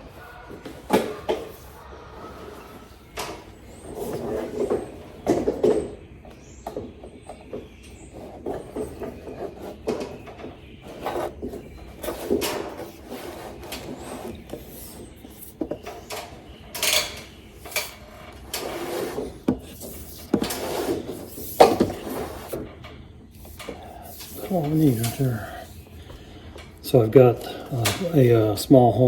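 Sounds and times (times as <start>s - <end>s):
cable scraping against wood: 7.2s - 28.5s.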